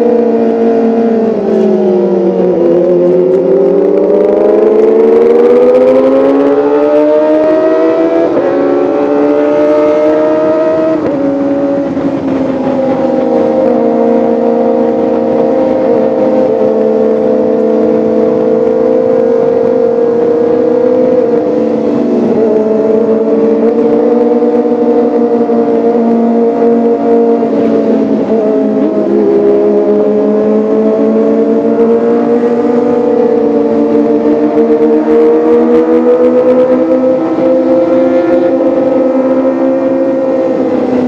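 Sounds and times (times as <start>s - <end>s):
motorcycle engine running high: 0.0s - 41.0s.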